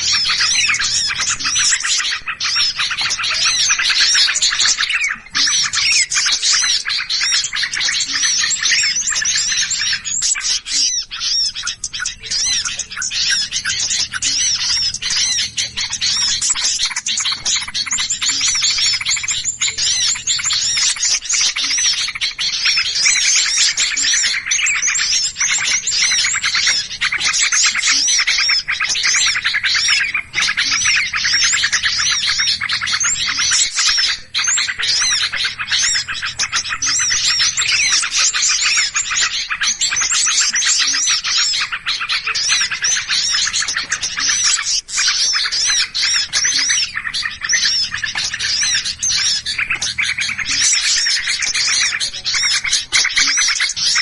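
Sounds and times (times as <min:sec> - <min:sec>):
small songbirds chirping: 0:00.0 - 0:54.0.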